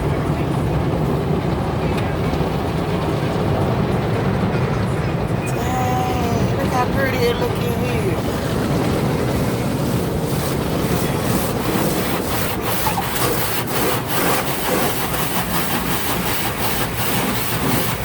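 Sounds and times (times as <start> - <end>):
car wash brushes scrubbing: 7.7 - 18.0
brushes slapping car body: 9.4 - 18.0.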